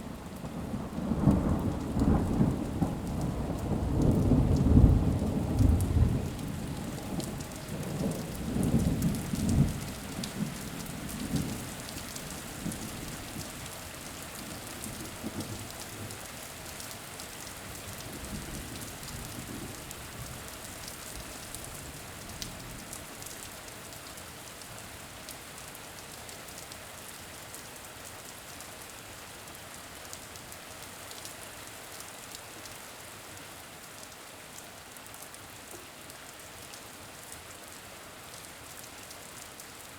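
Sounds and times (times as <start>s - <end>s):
steady rain: 0.0s - 39.9s
thunder rumbling: 0.8s - 10.6s.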